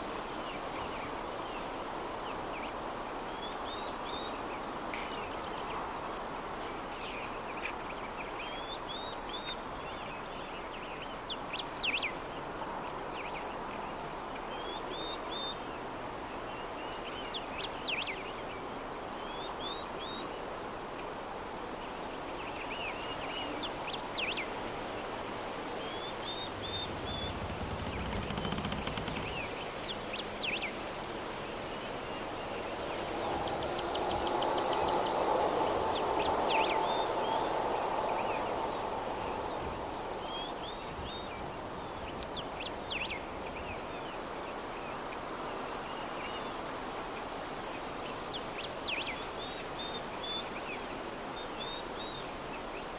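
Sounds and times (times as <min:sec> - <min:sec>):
soft breeze: 0:00.0 - 0:52.9
small birds chirping: 0:25.6 - 0:30.7.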